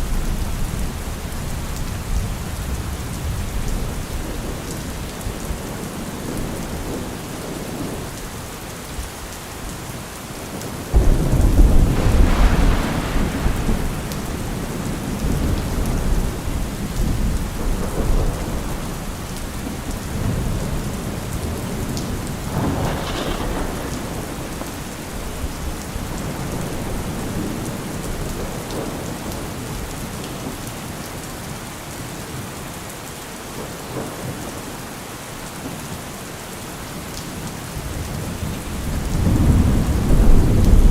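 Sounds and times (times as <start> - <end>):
steady rain: 0.0 - 40.9
thunder rumbling: 10.6 - 29.9, 37.8 - 40.9.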